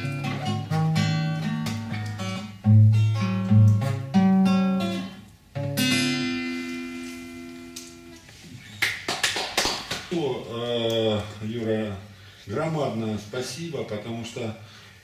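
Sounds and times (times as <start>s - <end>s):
acoustic guitar picking and strumming: 0.0s - 8.4s.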